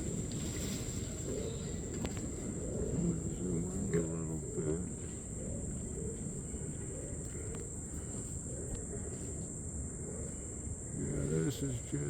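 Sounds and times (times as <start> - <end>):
insects droning high-pitched: 0.0 - 12.0.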